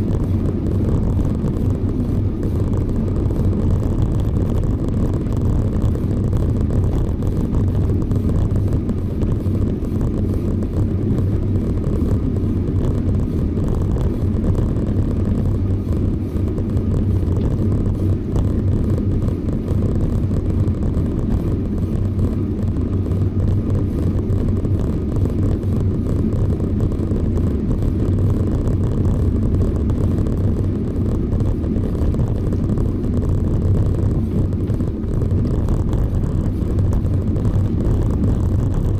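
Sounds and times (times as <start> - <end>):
road noise: 0.0 - 38.9
wind buffeting microphone: 0.0 - 38.9.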